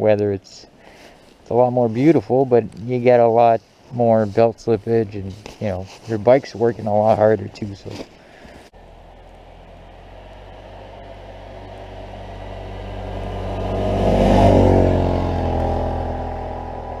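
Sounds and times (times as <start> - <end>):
vehicle engine: 7.8 - 17.0.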